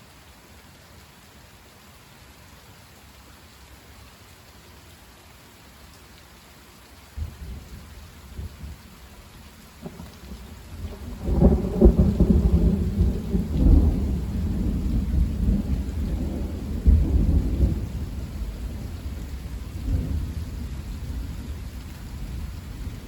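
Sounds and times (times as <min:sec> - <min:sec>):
steady rain: 0:00.0 - 0:23.0
thunder rumbling: 0:09.8 - 0:23.0.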